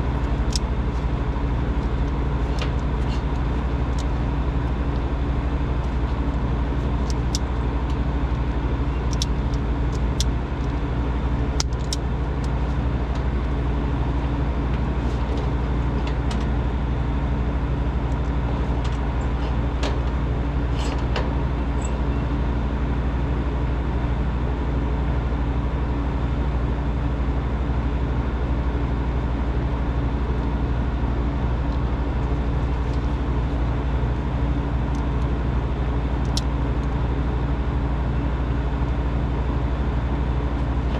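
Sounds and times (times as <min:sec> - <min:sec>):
machine humming: 0:00.0 - 0:23.7.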